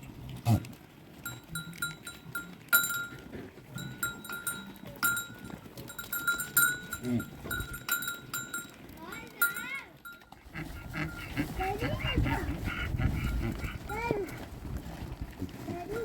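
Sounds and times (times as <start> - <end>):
small animal bells clinking: 1.2 - 12.2.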